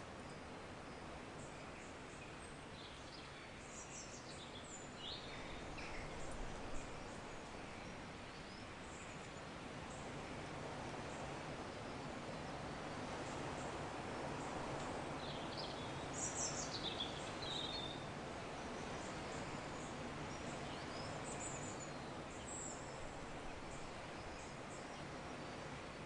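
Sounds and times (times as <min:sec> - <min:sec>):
soft background hiss: 0:00.0 - 0:26.0
small birds chirping: 0:15.2 - 0:25.1.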